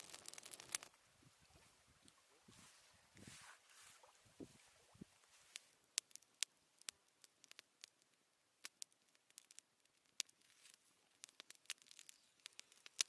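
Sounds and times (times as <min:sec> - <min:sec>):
campfire crackling: 0:00.0 - 0:01.1, 0:04.0 - 0:13.0.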